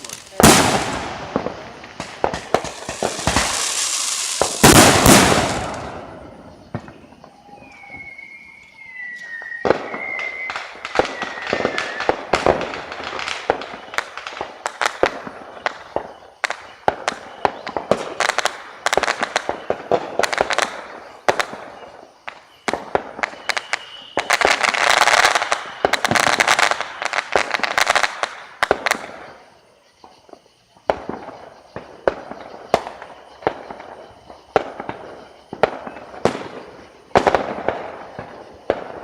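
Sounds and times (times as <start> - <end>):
falling firework whistle: 0.0 - 14.4, 15.1 - 29.2
fireworks bangs and crackling: 0.0 - 39.0.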